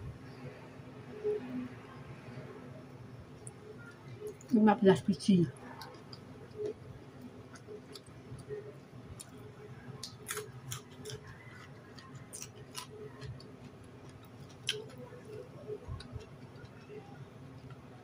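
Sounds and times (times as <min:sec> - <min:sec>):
person chewing: 0:05.6 - 0:17.9.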